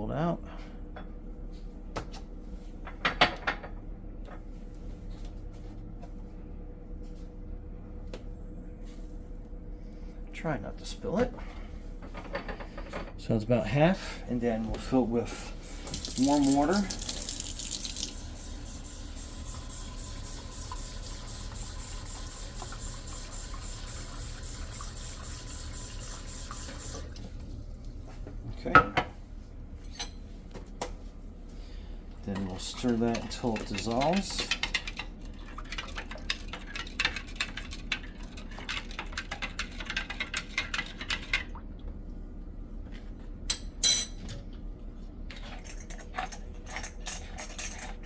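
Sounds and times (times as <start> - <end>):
water running from a tap: 15.6 - 27.4.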